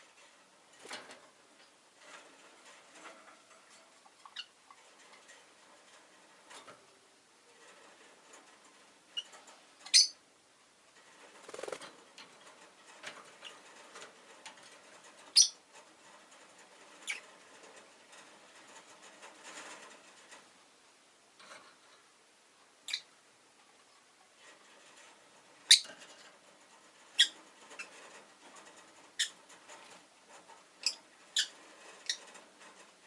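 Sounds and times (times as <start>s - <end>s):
soft rustling and scratching: 0.0s - 9.9s, 10.6s - 20.8s, 21.4s - 22.2s, 23.5s - 33.0s
lovebird chirping: 9.9s - 10.2s, 15.3s - 15.6s, 22.8s - 23.1s, 25.7s - 25.9s.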